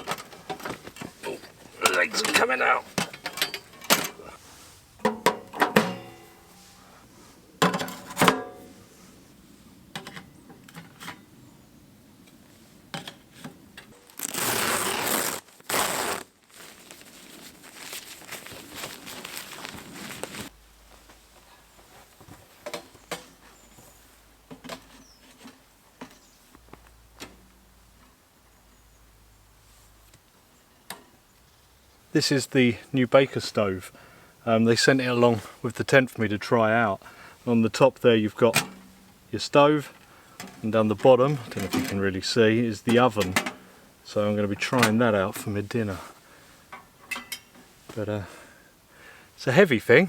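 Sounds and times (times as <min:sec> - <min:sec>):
metal stove clanking: 0:02.9 - 0:04.3, 0:05.0 - 0:06.8, 0:07.6 - 0:08.8, 0:38.5 - 0:39.2, 0:43.3 - 0:43.7, 0:46.7 - 0:47.7.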